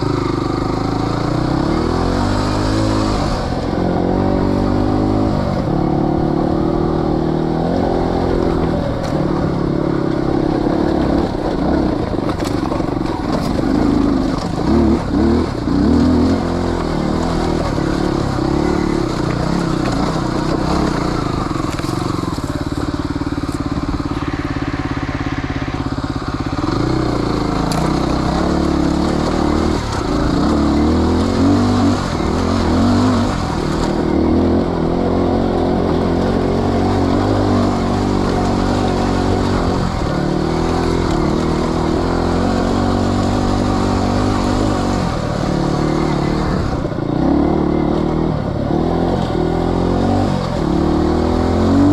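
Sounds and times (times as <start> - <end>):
off-road motorcycle engine: 0.0 - 51.9.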